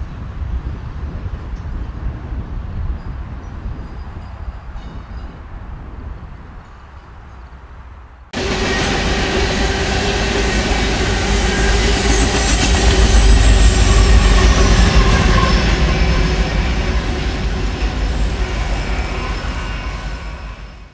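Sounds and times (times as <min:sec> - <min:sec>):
freight cars rolling past: 0:08.4 - 0:20.9.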